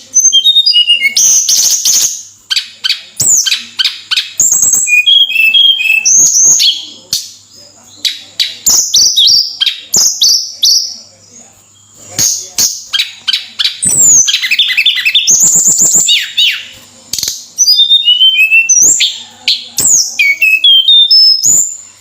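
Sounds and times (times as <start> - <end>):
bird singing whistled notes: 0.0 - 7.0, 12.3 - 16.7, 17.6 - 22.0.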